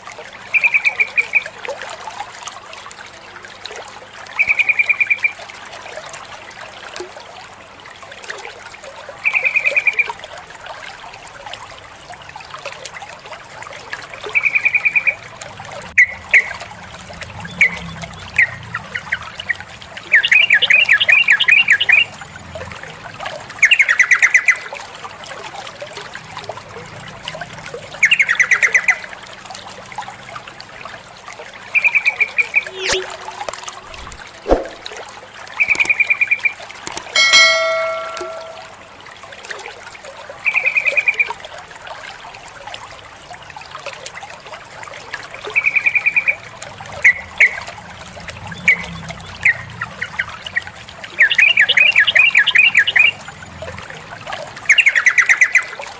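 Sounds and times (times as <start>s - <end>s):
trickling water: 0.0s - 55.9s
bulbul calling: 31.8s - 33.3s, 35.6s - 38.8s.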